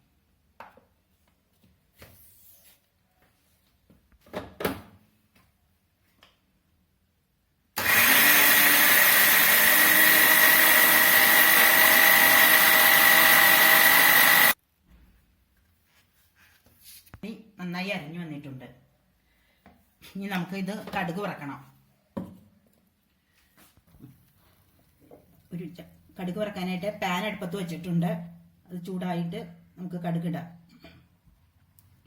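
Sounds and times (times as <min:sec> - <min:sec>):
mixer grinder whining: 0:07.8 - 0:14.6.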